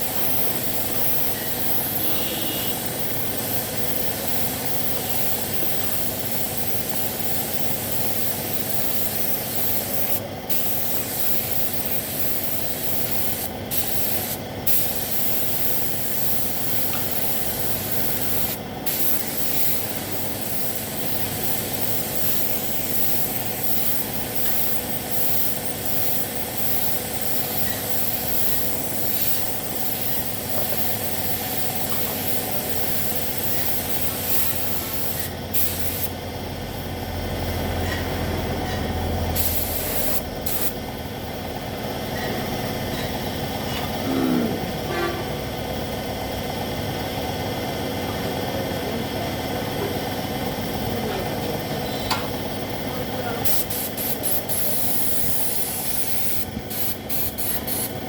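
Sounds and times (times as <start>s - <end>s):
paint spray gun hissing: 0.0s - 36.3s, 39.3s - 40.8s, 53.4s - 58.0s.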